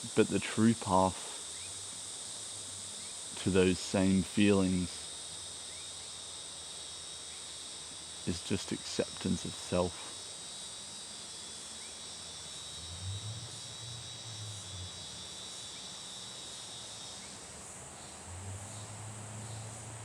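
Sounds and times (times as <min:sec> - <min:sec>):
faint low hum: 0:00.0 - 0:02.0, 0:02.6 - 0:05.1, 0:08.3 - 0:10.2
insects chirring: 0:00.0 - 0:20.0.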